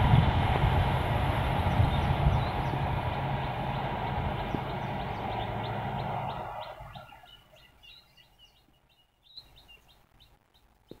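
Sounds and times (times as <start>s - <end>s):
passing train: 0.0s - 7.8s
bird chirps: 4.4s - 10.8s.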